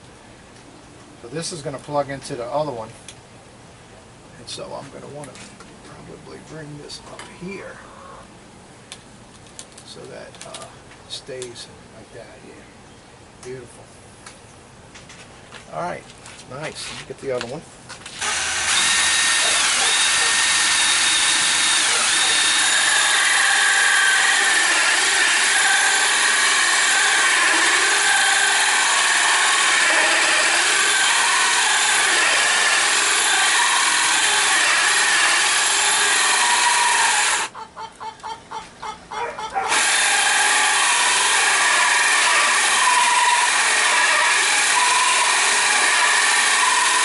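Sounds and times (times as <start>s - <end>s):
electric drill running under load: 18.1s - 37.5s, 39.7s - 47.0s.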